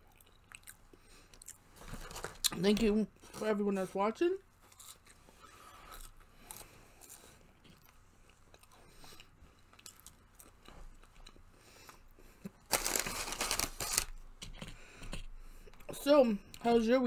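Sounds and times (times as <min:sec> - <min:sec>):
chewing crunchy food: 0:00.0 - 0:02.6, 0:04.6 - 0:15.2.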